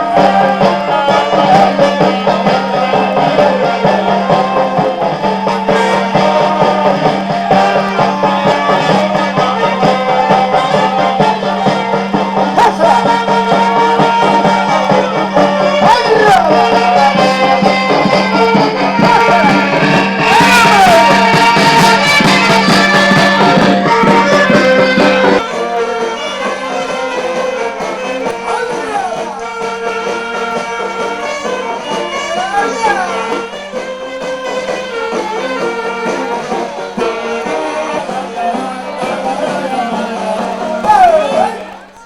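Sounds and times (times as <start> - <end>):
folk music with singing: 0.0 - 42.0.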